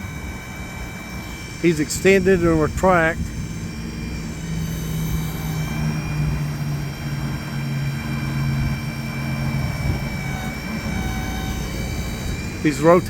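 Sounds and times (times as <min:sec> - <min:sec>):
faint high whine: 0:00.0 - 0:13.0
truck engine hum: 0:00.0 - 0:13.0.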